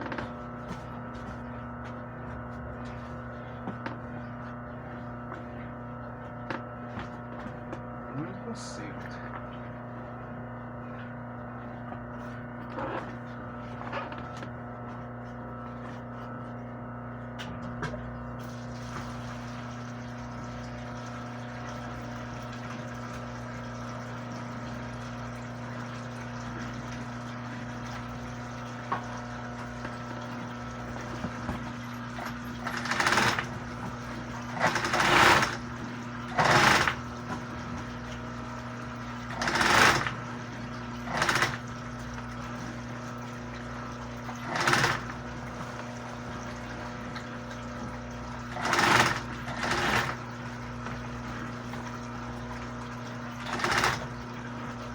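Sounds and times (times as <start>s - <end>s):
sewing machine motor humming: 18.4s - 52.0s, 53.1s - 54.9s
sewing machine stitching bursts: 32.1s - 37.4s, 39.2s - 41.8s, 44.3s - 45.7s, 48.4s - 50.3s, 53.3s - 54.2s.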